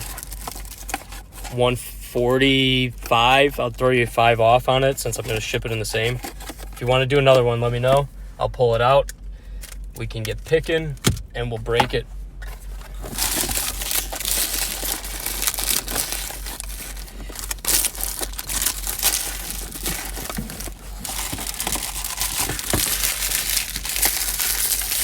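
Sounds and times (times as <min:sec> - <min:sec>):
plastic packaging crinkling: 0:00.0 - 0:01.5, 0:12.6 - 0:25.0
steady low hum: 0:00.0 - 0:25.0.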